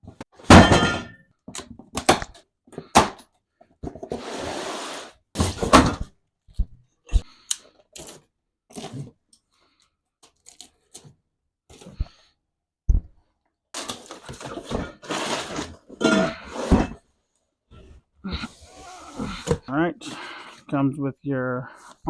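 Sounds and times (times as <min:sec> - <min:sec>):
cardboard tearing: 0:13.8 - 0:15.8.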